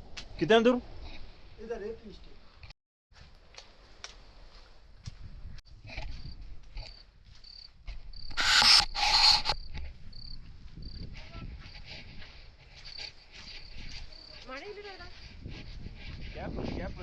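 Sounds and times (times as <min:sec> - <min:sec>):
insects chirping: 0:06.2 - 0:11.8, 0:12.6 - 0:15.3.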